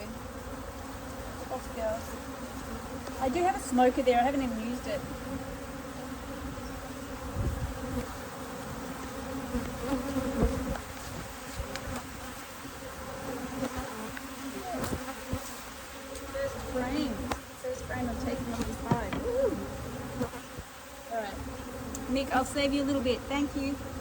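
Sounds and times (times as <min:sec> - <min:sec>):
honeybees buzzing: 0:00.0 - 0:24.0
faint knocks: 0:18.5 - 0:19.4.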